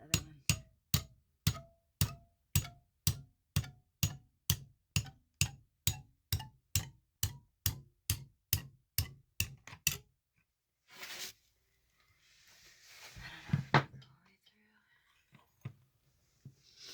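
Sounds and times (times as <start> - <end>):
hammer tapping on rock: 0.1 - 10.0.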